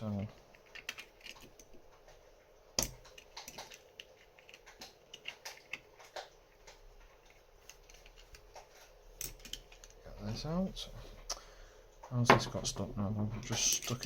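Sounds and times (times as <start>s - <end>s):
small metal parts clicking: 0.1s - 1.8s, 2.8s - 10.0s, 13.6s - 14.0s.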